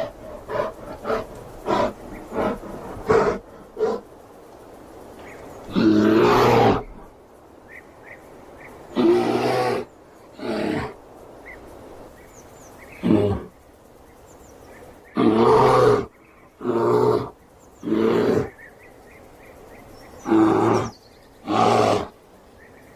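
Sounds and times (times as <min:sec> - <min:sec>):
bear roaring: 0:00.0 - 0:04.1, 0:05.7 - 0:07.0, 0:08.9 - 0:11.0, 0:15.1 - 0:18.6, 0:20.2 - 0:22.2.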